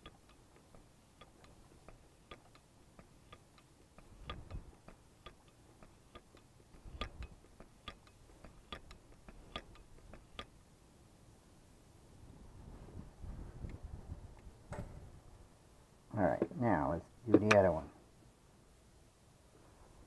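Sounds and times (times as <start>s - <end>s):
light ticking: 0.0s - 10.6s.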